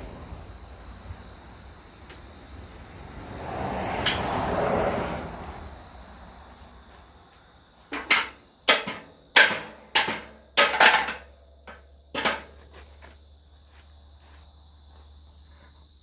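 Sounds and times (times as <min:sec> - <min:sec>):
hammer striking steel: 0:07.9 - 0:12.5.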